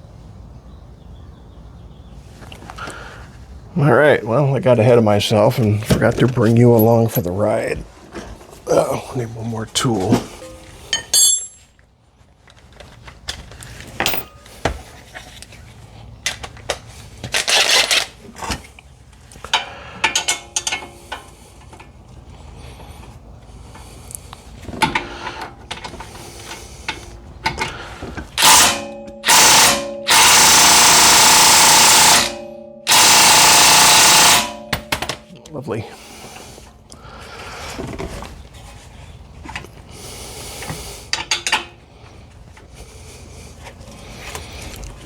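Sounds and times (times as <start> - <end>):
hand tools clicking and clanking: 9.8 - 11.8, 12.5 - 14.6, 19.3 - 22.0, 23.6 - 37.1, 40.6 - 41.9
power wrench spinning fasteners: 17.3 - 18.2, 28.3 - 35.2.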